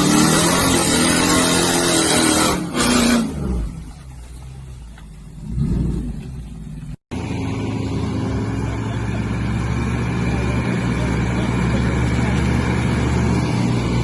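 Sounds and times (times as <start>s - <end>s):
off-road vehicle engine revving: 0.0s - 14.0s
engine running steadily: 3.3s - 14.0s.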